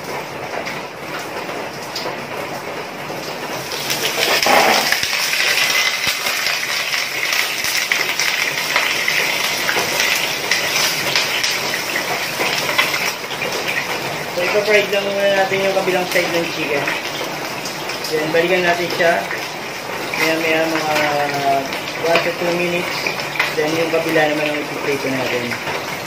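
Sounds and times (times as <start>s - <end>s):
chicken sizzling in hot oil: 3.5s - 26.0s.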